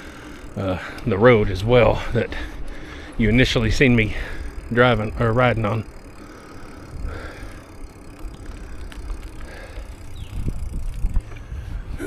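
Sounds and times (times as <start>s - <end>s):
bicycle tyre noise: 0.0s - 12.0s
faint clicks: 2.3s - 11.5s
wind rumble on microphone: 10.2s - 12.0s.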